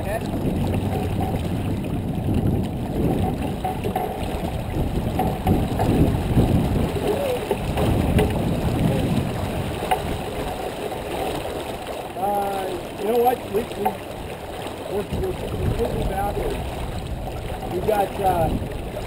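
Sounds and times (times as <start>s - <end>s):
water rushing along a boat hull: 0.0s - 19.0s
wind buffeting microphone: 0.0s - 19.0s.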